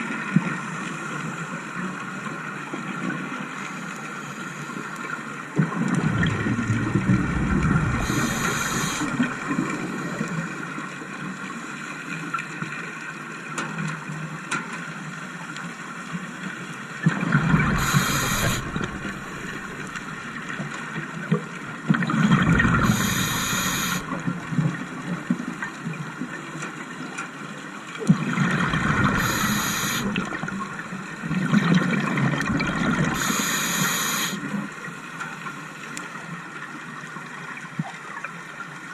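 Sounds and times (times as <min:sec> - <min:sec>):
faint steady hum: 0:03.6 - 0:10.8, 0:17.2 - 0:21.0, 0:22.2 - 0:25.4, 0:28.4 - 0:36.0
gurgling exhaled bubbles: 0:05.6 - 0:10.8, 0:17.1 - 0:21.0, 0:21.9 - 0:25.0, 0:28.1 - 0:34.4
regulator hiss: 0:06.3 - 0:10.0, 0:17.6 - 0:20.6, 0:22.7 - 0:24.2, 0:29.0 - 0:30.5, 0:33.0 - 0:34.4.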